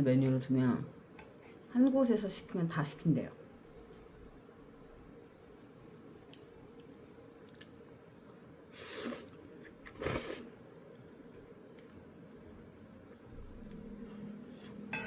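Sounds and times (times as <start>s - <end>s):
person slurping noodles: 8.7s - 10.6s.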